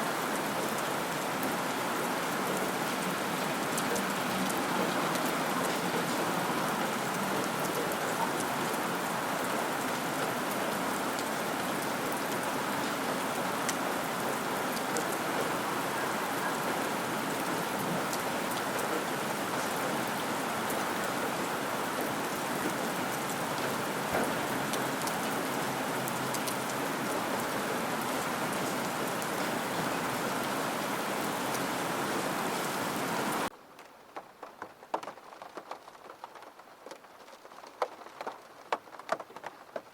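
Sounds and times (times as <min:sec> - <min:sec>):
raindrops ticking: 0:33.5 - 0:39.9.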